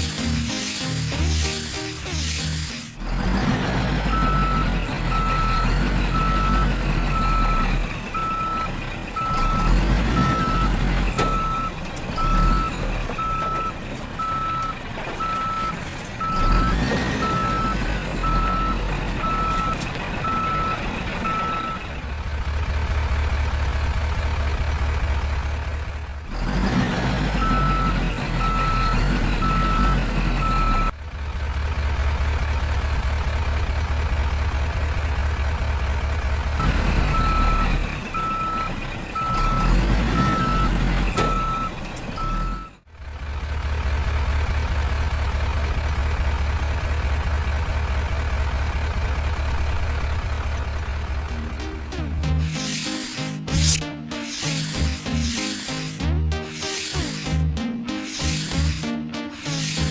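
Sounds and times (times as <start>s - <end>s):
low engine drone: 0.0s - 8.4s, 50.5s - 59.9s
vehicle reversing alarm beeping: 4.0s - 21.9s, 27.4s - 31.0s, 36.6s - 42.8s, 51.3s - 59.9s.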